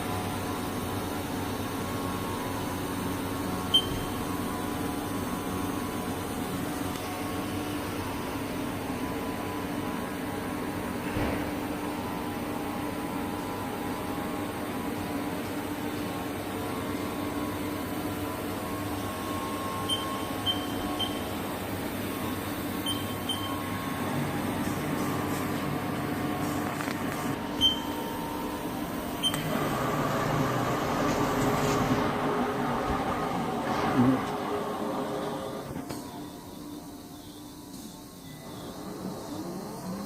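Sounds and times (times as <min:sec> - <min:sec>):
lathe mechanical hum: 0:00.0 - 0:40.0
short high beeps: 0:03.7 - 0:04.1.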